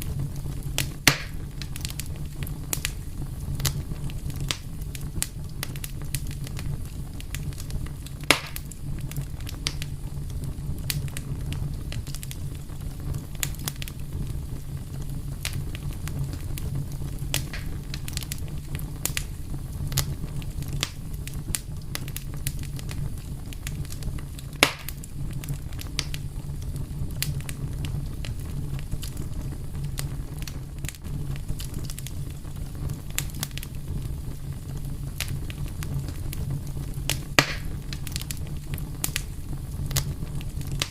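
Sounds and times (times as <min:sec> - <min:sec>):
fire crackling and popping: 0:00.0 - 0:40.9.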